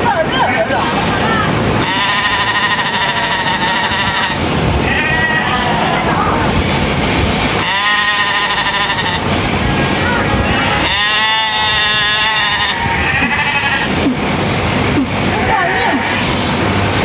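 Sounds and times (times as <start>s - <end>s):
sheep bleating: 1.8s - 6.1s, 7.6s - 9.3s, 10.5s - 14.2s.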